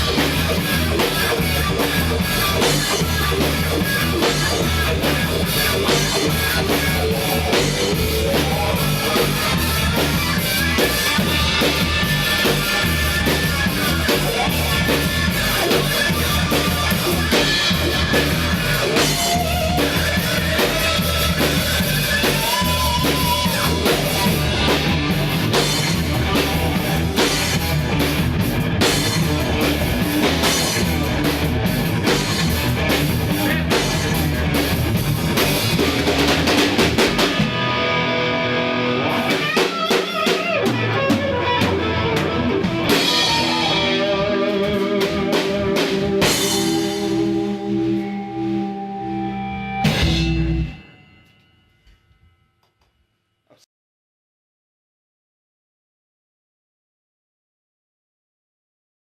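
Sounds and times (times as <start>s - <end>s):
rock band playing: 0.0s - 51.1s
held guitar notes: 37.1s - 51.1s.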